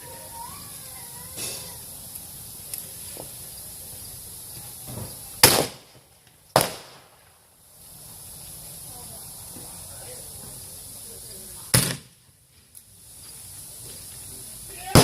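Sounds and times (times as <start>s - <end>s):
distant gunshot pops: 5.4s - 5.9s, 6.6s - 7.1s
loud blank gunshots: 5.4s - 7.2s, 11.7s - 12.1s.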